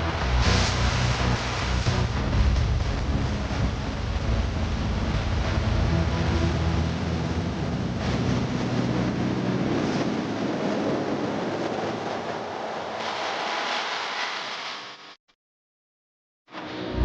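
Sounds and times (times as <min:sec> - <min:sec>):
waterfall rushing: 0:00.0 - 0:09.6
wind on microphone: 0:00.0 - 0:13.4.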